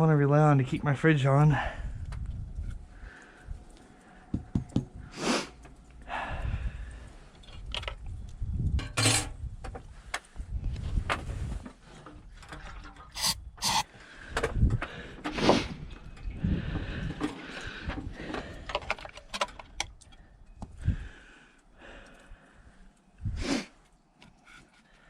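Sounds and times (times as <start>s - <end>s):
rubbing and scraping handling noises: 10.8s - 13.9s
short sharp scrapes: 13.1s - 13.9s.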